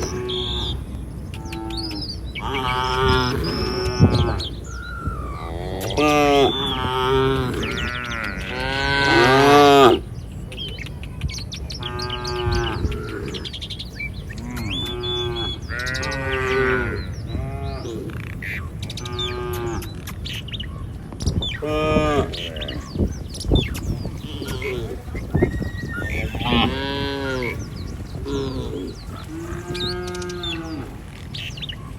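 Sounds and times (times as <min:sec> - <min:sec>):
small birds chirping: 0:00.0 - 0:31.9
cattle mooing: 0:01.4 - 0:10.0, 0:14.4 - 0:18.2, 0:21.6 - 0:22.9, 0:24.0 - 0:31.2.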